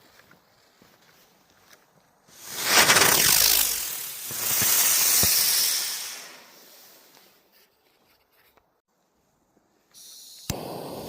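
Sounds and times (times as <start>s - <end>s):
firework hissing: 2.3s - 7.4s, 10.0s - 11.0s
small firework pops: 2.4s - 6.5s, 10.0s - 11.0s.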